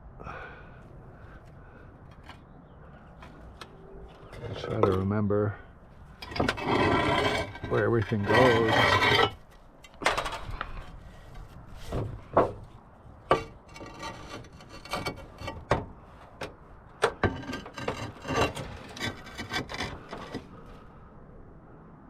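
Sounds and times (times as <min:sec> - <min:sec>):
tiles scraping and rubbing: 0:04.0 - 0:05.0, 0:06.2 - 0:09.4, 0:13.3 - 0:15.7, 0:17.1 - 0:20.6.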